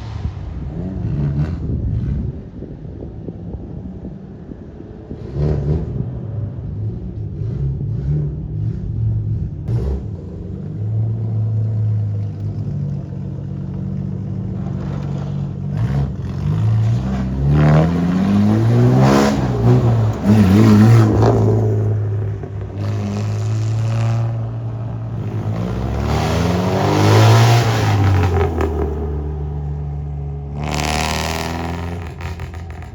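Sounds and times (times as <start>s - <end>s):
cars revving and driving past: 0.0s - 32.9s
car engines idling: 18.0s - 32.9s.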